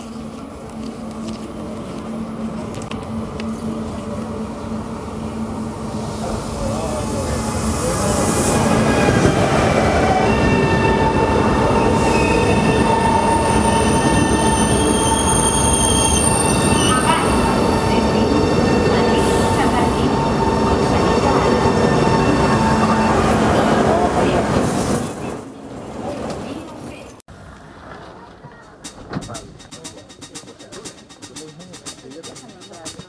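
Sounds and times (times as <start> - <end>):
train rumbling on rails: 0.0 - 33.0
train wheels squealing: 6.7 - 27.2.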